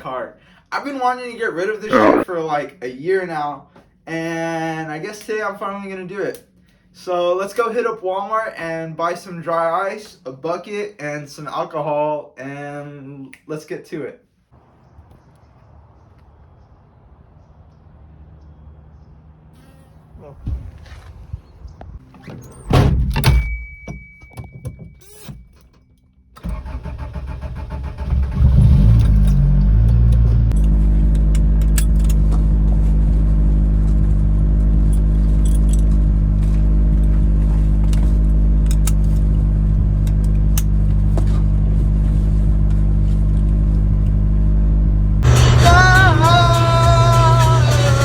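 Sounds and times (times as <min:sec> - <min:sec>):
held electronic tone: 0:01.9 - 0:02.2
car engine starting and idling: 0:26.4 - 0:48.0
music with singing: 0:45.2 - 0:48.0.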